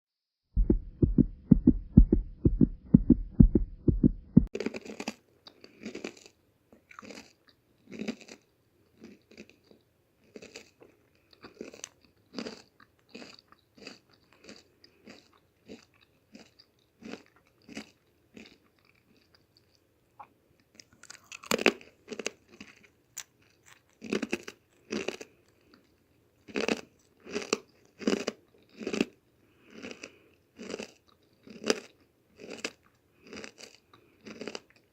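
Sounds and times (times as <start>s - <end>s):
loud low thumps: 0.6s - 4.5s
crunchy chewing of cookies: 4.5s - 34.9s.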